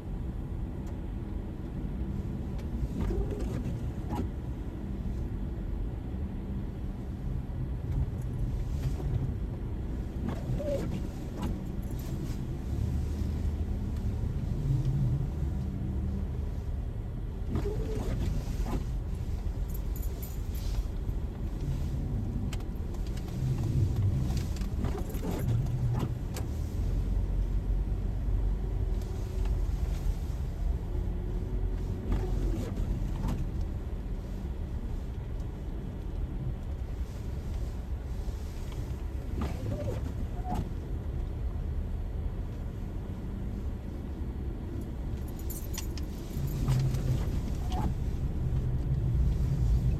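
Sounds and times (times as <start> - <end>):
engine and road rumble: 0.0 - 49.9
light clicks and rattles: 17.5 - 30.8, 44.7 - 49.9.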